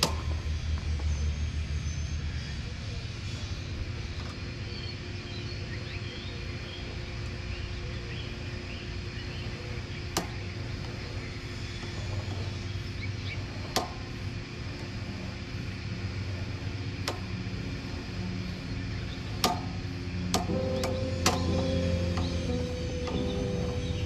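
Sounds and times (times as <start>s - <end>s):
low hum: 0.0s - 24.0s
sharp clicks: 20.3s - 24.0s
faint higher tone: 20.5s - 24.0s.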